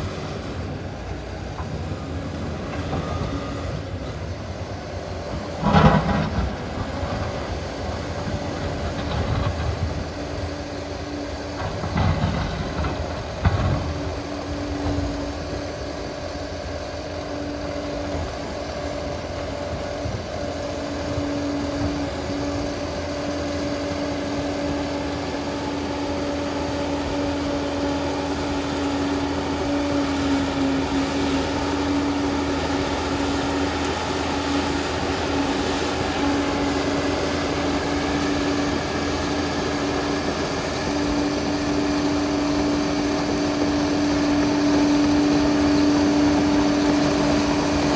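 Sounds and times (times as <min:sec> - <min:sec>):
bulldozer diesel engine droning: 0:00.0 - 0:47.9.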